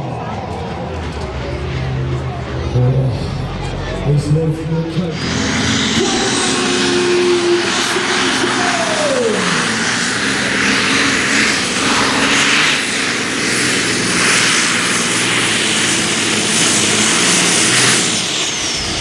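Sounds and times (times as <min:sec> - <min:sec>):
diesel engine running hard: 0:00.0 - 0:19.0
high steady whine: 0:00.0 - 0:19.0.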